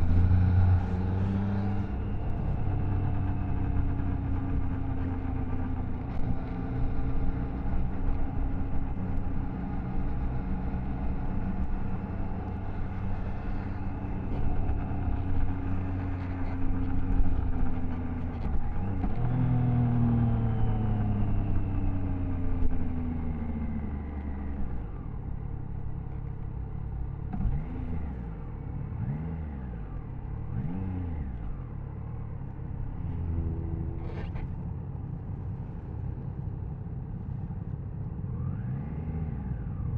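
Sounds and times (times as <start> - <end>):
motorcycle engine running: 0.0 - 24.6.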